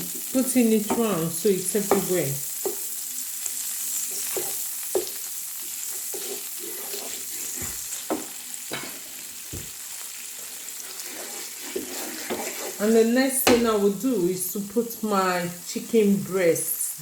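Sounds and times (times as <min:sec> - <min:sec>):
butter sizzling in a frying pan: 0:00.0 - 0:17.0
utensil scraping and tapping pan: 0:05.9 - 0:09.0, 0:10.9 - 0:12.8.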